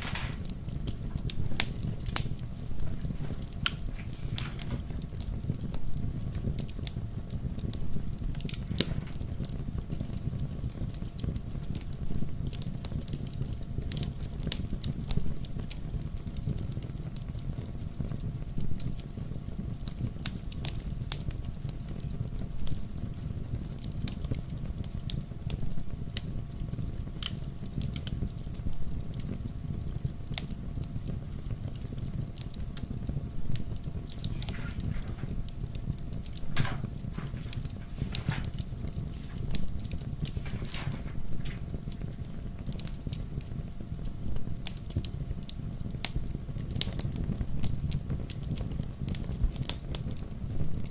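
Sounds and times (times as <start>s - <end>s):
low rush of flames: 0.0s - 11.0s, 33.5s - 43.0s
fire crackling and popping: 0.0s - 50.9s.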